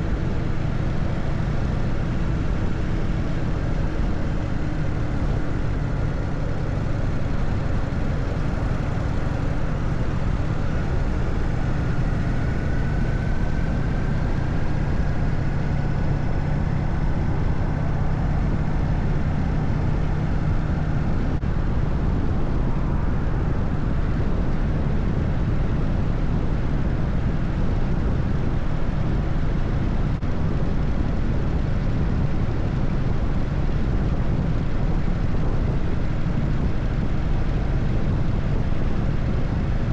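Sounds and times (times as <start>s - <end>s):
motorcycle engine rumble: 0.0s - 21.2s
road and rushing air noise: 0.0s - 39.9s.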